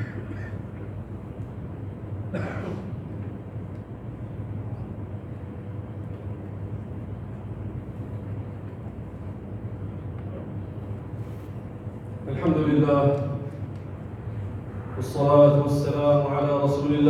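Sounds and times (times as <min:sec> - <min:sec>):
low hum of sound system: 0:00.0 - 0:17.0.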